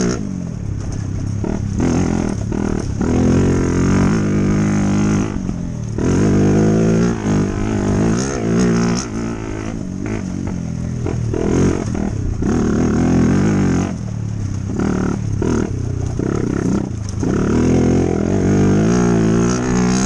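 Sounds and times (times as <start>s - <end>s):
dirt bike engine: 0.0s - 20.0s.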